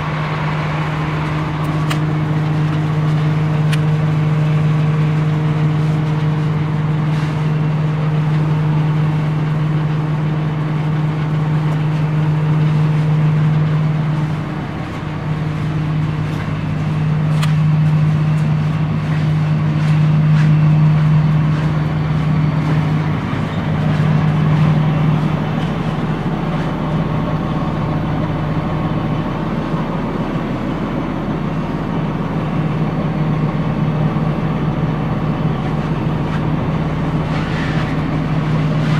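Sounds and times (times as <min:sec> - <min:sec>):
bus engine low drone: 0:00.0 - 0:38.9.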